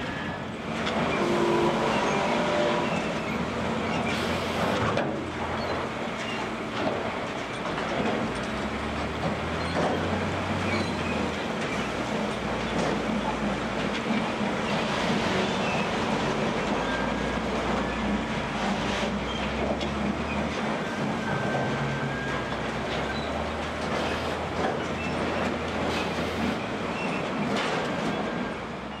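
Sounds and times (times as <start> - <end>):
wheel loader diesel engine: 0.0 - 29.0
knocks and clatter: 6.2 - 18.7, 19.3 - 28.5.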